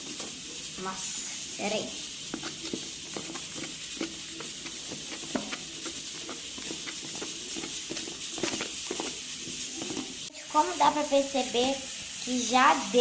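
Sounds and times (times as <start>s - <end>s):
spoon stirring squelching slime: 0.0s - 10.3s.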